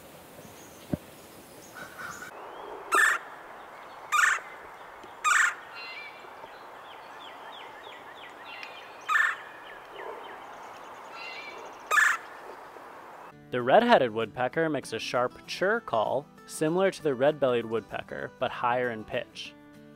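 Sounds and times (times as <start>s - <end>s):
woodpecker rolling calls: 0.5s - 13.3s.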